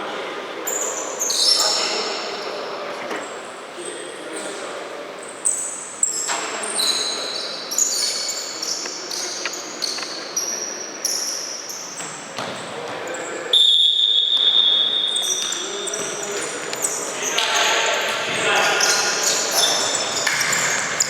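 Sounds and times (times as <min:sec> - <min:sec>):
shoes squeaking on court: 0:05.4 - 0:21.0
referee whistle blast: 0:13.5 - 0:15.6.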